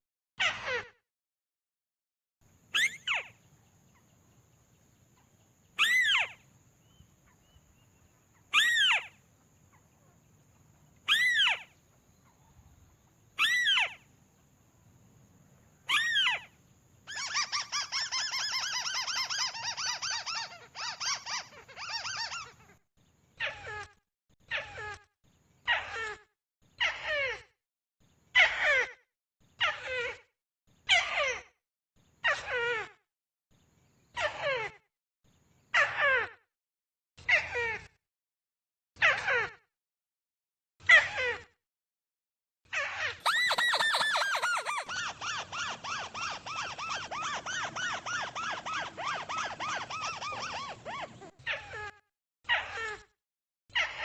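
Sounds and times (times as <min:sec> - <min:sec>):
crake calling: 0:43.2 - 0:45.7.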